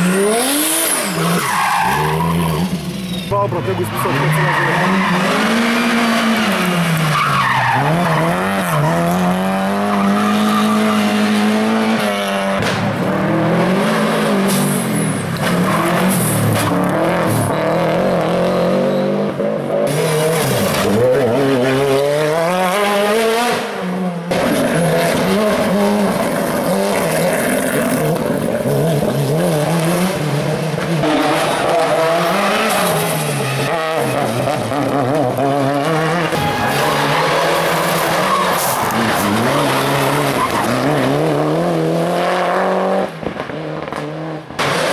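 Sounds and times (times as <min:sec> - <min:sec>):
race car engines revving: 0:00.0 - 0:44.9
tyres squealing on tarmac: 0:00.9 - 0:05.6, 0:07.0 - 0:09.1, 0:36.0 - 0:41.0.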